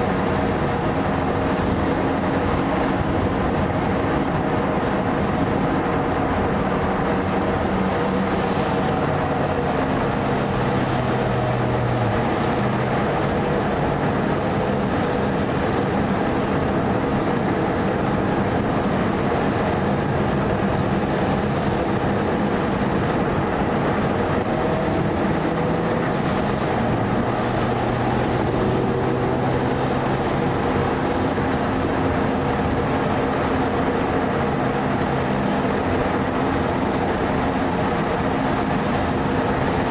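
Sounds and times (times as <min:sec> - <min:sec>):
car engine revving: 0:00.0 - 0:39.9
road and wind noise: 0:00.0 - 0:39.9.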